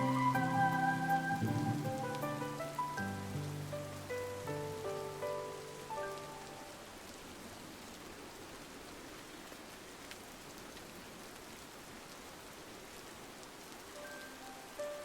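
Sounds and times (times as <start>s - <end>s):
soft music notes: 0.0s - 6.7s
rain on window glass: 0.0s - 15.0s.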